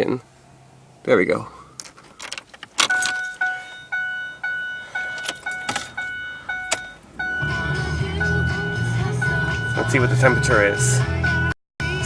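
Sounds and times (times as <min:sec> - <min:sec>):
dashboard warning chime: 0:02.8 - 0:11.6.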